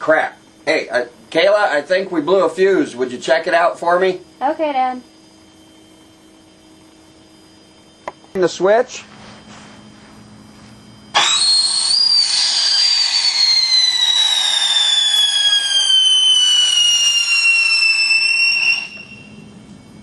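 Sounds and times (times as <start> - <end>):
whistling firework: 8.9 - 20.0.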